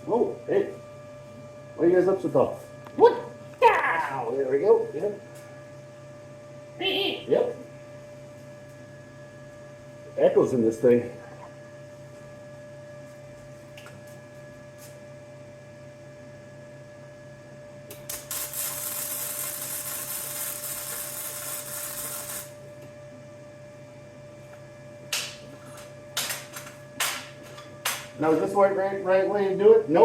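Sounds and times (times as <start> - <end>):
steady electrical hum: 0.0 - 30.0
welder welding: 17.9 - 22.6.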